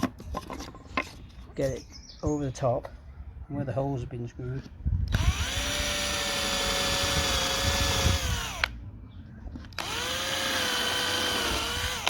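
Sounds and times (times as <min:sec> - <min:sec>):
power drill drilling wood: 0:05.1 - 0:08.7, 0:09.8 - 0:12.0.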